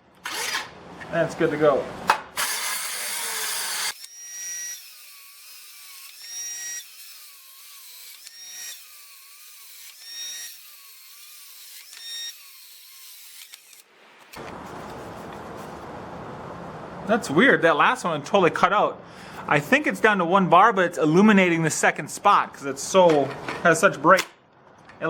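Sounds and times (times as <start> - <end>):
circular saw cutting out: 2.4 - 13.9.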